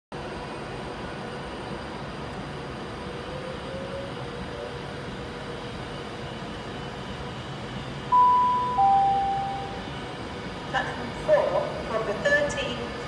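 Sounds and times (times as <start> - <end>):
faint train whine: 0.2 - 13.0
two-note falling chime: 8.1 - 9.8.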